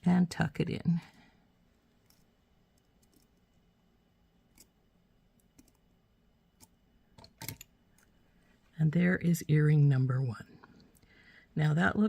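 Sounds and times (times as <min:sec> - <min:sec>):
pliers and wire clicking: 0:02.0 - 0:03.4, 0:04.5 - 0:04.8, 0:05.4 - 0:05.9, 0:06.6 - 0:08.1.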